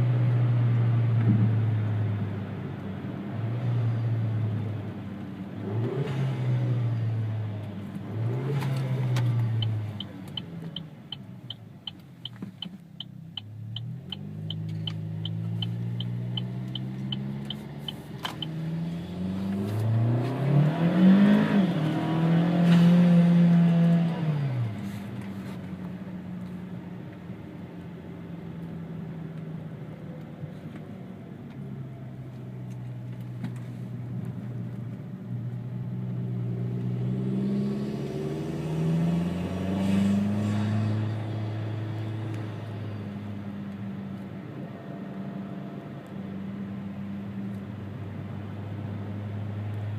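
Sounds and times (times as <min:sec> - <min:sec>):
car engine revving through gears: 0:05.6 - 0:10.9, 0:13.4 - 0:25.6, 0:35.8 - 0:43.8.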